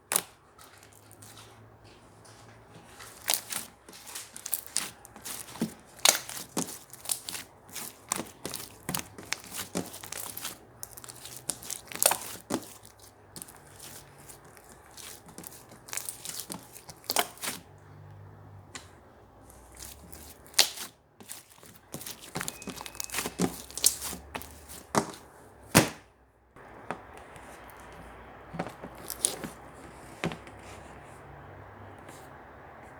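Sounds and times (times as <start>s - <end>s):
wet crackle of slime: 0.0s - 1.6s, 2.8s - 17.8s, 19.5s - 25.2s, 26.6s - 29.9s
slime clicking and popping: 3.2s - 17.6s, 19.8s - 24.5s.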